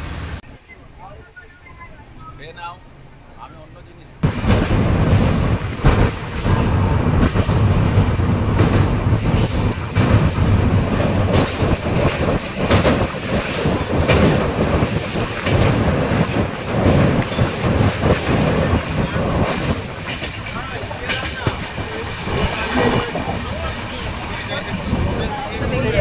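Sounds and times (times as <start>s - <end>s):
train rumbling: 0.0s - 26.0s
wheels clattering over rails: 4.2s - 26.0s.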